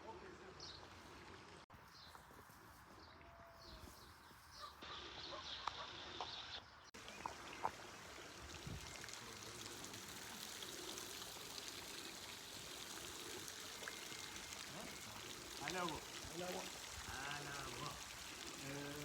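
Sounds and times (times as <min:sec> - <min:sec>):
water running: 0:07.0 - 0:19.0.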